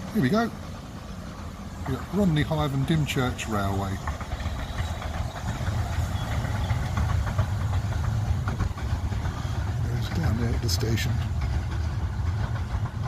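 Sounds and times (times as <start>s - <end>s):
miniature train running: 0.0s - 13.0s
wind buffeting microphone: 1.1s - 13.0s.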